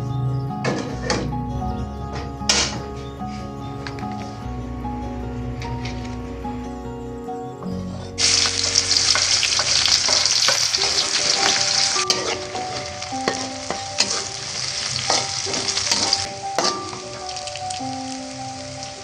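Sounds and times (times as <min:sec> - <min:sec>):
utensil stirring in pan: 0:08.2 - 0:17.6
food sizzling in hot oil: 0:08.2 - 0:19.0.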